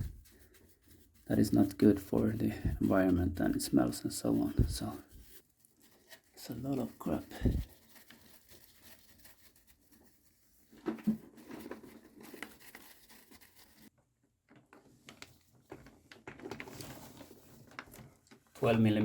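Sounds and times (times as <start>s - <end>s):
brush scrubbing: 0.0s - 13.9s.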